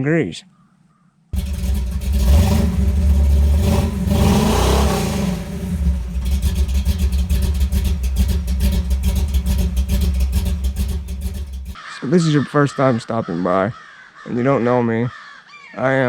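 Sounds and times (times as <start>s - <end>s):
engine revving and lopey idle: 1.4s - 11.8s.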